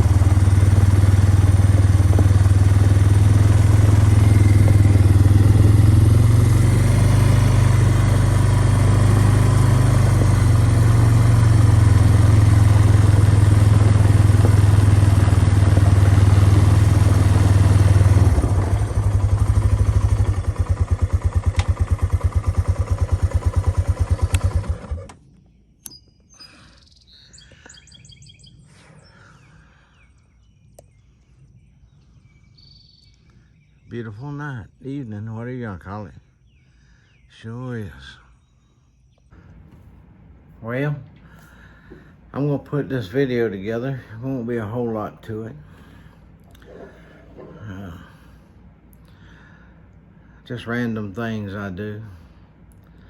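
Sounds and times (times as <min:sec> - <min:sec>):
birds chirping: 0:00.0 - 0:24.6, 0:25.2 - 0:53.0
engine chugging: 0:00.0 - 0:25.2, 0:39.4 - 0:53.0.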